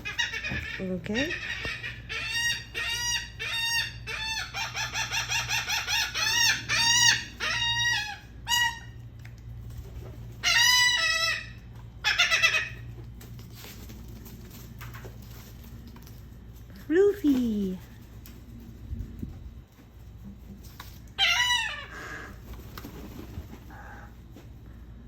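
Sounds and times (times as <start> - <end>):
gulls calling: 0.0 - 9.0.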